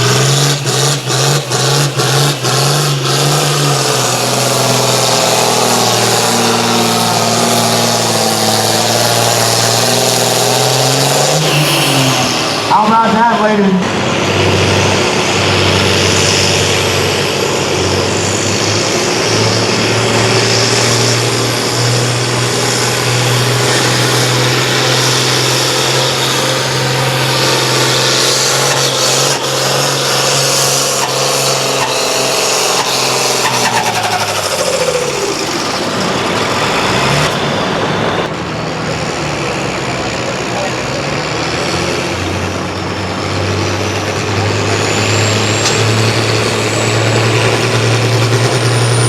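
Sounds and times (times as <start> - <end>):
tractor engine at full throttle: 0.0 - 49.0.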